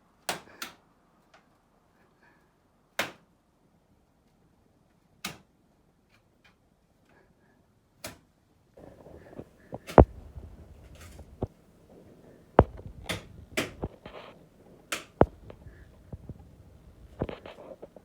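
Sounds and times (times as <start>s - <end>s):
paper rustling: 8.8s - 18.0s
paper tearing with sharp pops: 12.6s - 18.0s.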